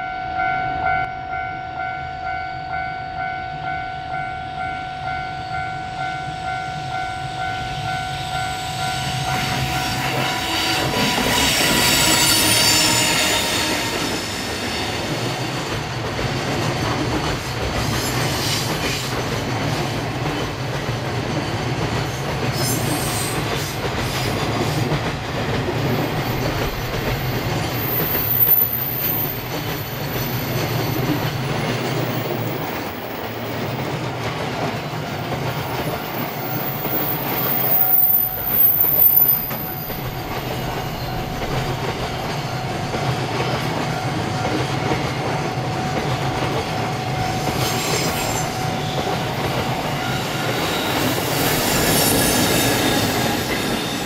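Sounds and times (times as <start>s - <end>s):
train wheels clattering on rails: 7.7s - 54.0s
high wheel squeal: 8.1s - 15.5s, 27.2s - 32.6s, 36.1s - 42.6s, 47.3s - 54.0s.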